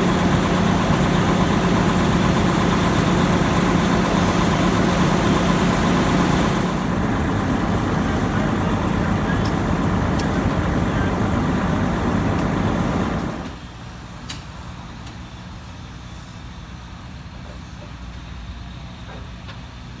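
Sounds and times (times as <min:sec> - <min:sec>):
diesel machinery running: 0:00.0 - 0:13.9.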